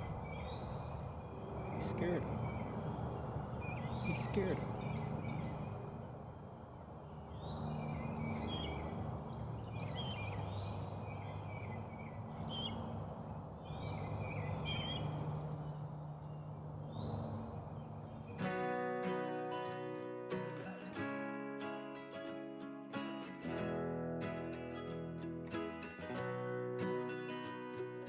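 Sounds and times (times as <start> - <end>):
birds chirping and calling: 0.0 - 6.1, 7.3 - 12.9, 13.6 - 18.5
acoustic guitar music: 1.5 - 6.1, 14.0 - 28.0.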